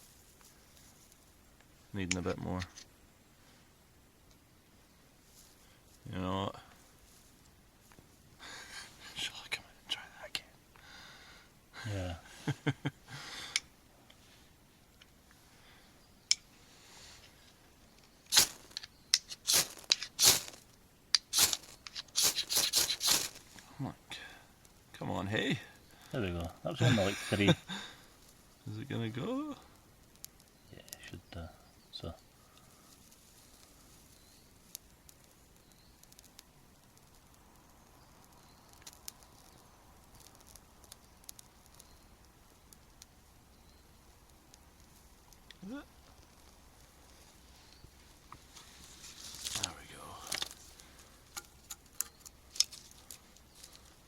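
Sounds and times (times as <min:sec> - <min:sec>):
faint fire crackles: 0:00.0 - 0:54.0
ferro rod scraping rasps: 0:18.3 - 0:20.6, 0:21.2 - 0:23.6.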